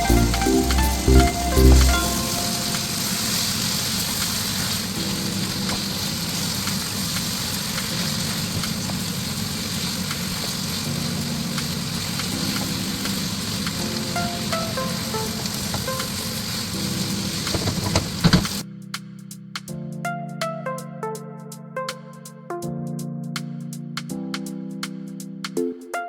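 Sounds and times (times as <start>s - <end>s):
curry sizzling in a pan: 0.0s - 18.6s.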